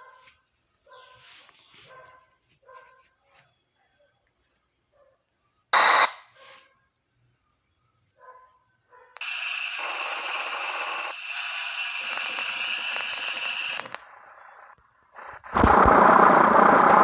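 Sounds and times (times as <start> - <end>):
compressed air hissing: 9.2 - 14.2.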